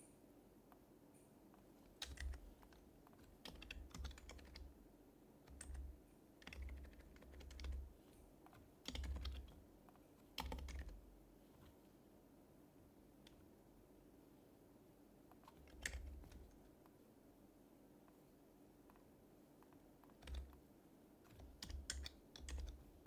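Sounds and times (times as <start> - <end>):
keyboard typing soft clicks: 0.7 - 4.7, 5.4 - 11.0, 15.3 - 17.0, 18.8 - 23.0.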